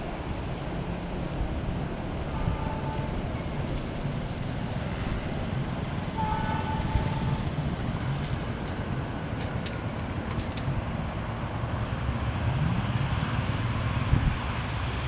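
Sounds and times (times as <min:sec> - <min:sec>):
distant train rumble: 0:00.0 - 0:15.0
brief high tone: 0:02.3 - 0:03.5, 0:06.2 - 0:07.5
wind on microphone: 0:13.9 - 0:14.6.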